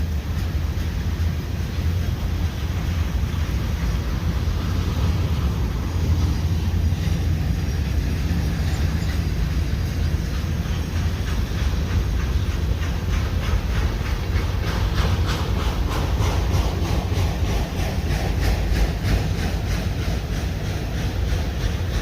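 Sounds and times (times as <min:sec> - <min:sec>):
freight train rumbling past: 0:00.0 - 0:22.0
wheels clicking over rail joints: 0:00.0 - 0:22.0.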